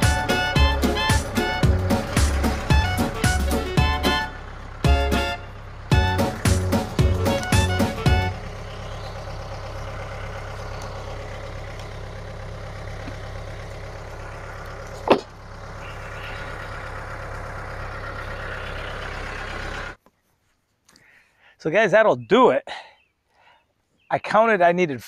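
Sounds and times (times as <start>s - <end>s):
music: 0.0s - 8.4s
engine running: 0.0s - 20.0s.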